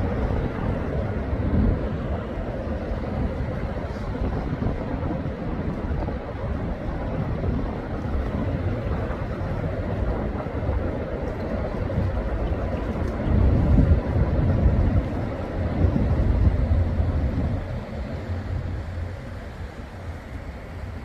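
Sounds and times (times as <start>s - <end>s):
highway traffic rumble: 0.0s - 21.0s.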